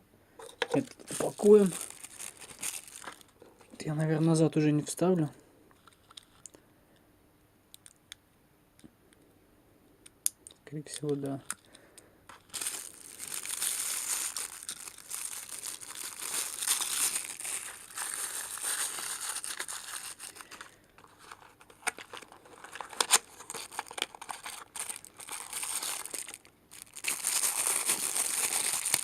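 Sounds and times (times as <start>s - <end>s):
packaging crinkling: 0.4s - 3.4s, 11.0s - 29.0s.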